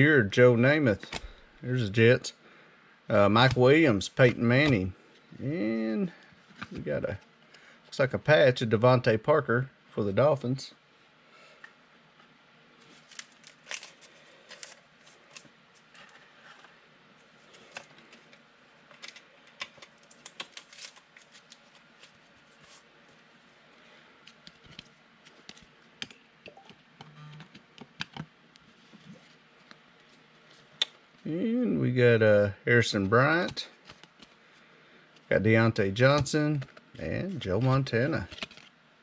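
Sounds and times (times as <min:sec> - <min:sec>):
wrappers rustling: 0:12.8 - 0:16.1, 0:19.9 - 0:22.9.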